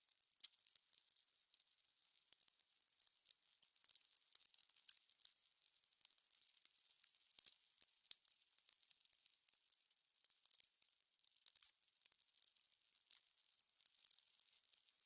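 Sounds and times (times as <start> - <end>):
faint steady hiss: 0.0 - 15.0
fire crackling and popping: 0.1 - 15.0.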